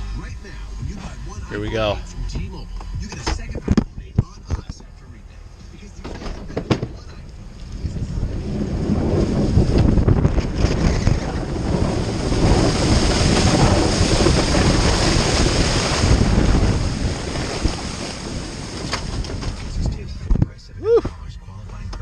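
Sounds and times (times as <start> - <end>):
snow spraying off plow blade: 11.4 - 19.8.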